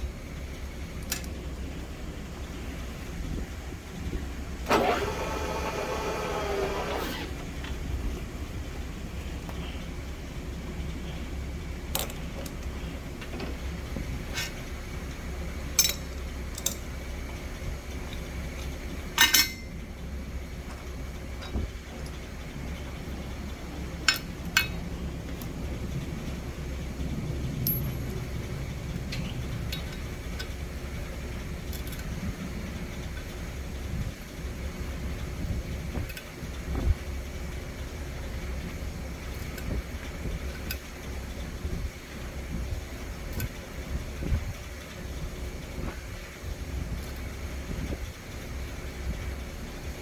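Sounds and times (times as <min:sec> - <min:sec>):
low machine hum: 0:00.0 - 0:50.0
metallic clinks: 0:19.2 - 0:19.8, 0:27.6 - 0:28.1.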